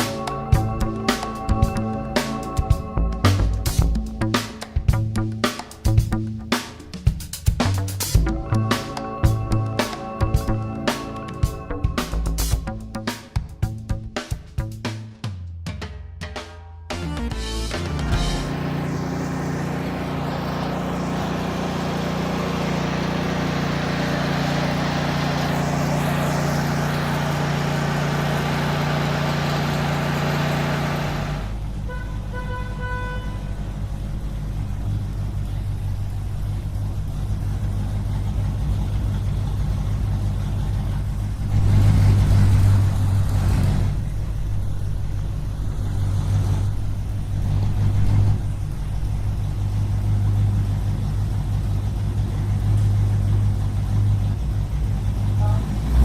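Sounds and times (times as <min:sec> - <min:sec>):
heavy vehicle engines running: 0:00.0 - 0:07.0, 0:07.6 - 0:14.2, 0:17.0 - 0:56.0
vehicle horn: 0:31.8 - 0:33.8, 0:55.3 - 0:56.0.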